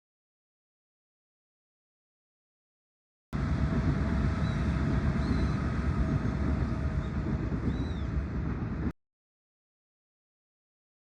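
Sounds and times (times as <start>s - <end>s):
low rumbling outdoor noise: 3.4s - 8.9s.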